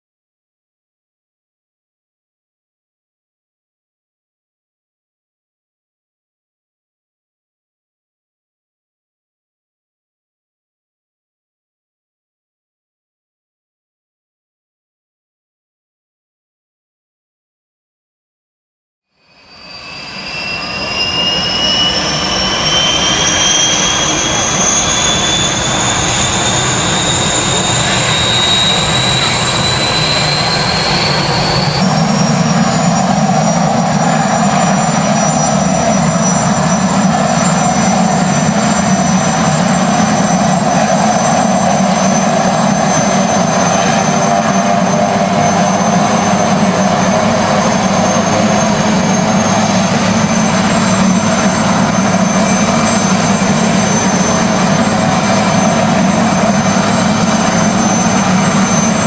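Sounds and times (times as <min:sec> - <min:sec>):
high-pitched turbine whine: 0:19.2 - 0:59.0
helicopter turbine and rotor noise: 0:19.3 - 0:59.0.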